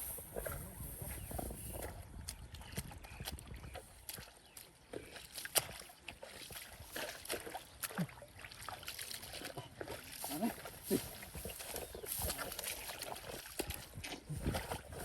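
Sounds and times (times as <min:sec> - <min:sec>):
splashing in shallow muddy water: 0:00.0 - 0:15.0.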